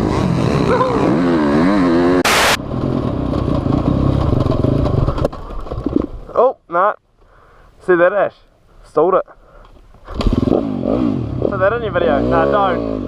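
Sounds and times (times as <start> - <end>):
motocross bike engine revving: 0.0 - 5.2, 10.1 - 13.0.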